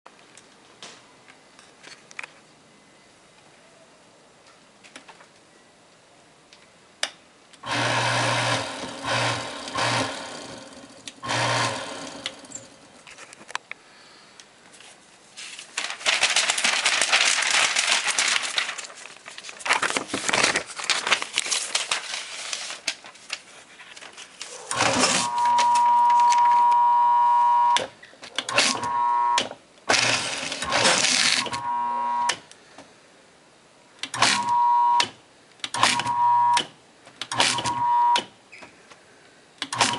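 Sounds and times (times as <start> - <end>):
paper shredder motor humming: 7.6 - 12.7, 24.7 - 27.2, 29.9 - 32.2
dense crackling of shredding: 15.4 - 24.6.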